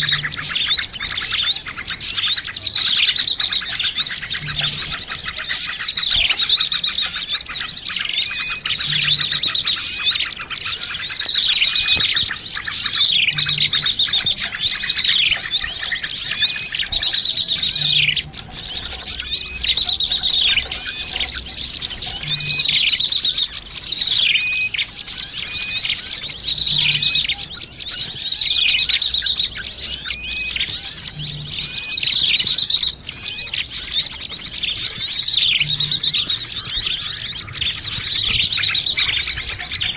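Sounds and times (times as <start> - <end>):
small birds chirping and twittering: 0.0 - 39.9.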